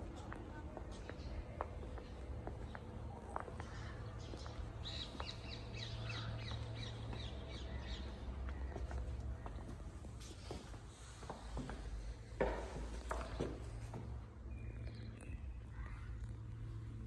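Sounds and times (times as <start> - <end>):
birds calling: 3.6 - 9.1.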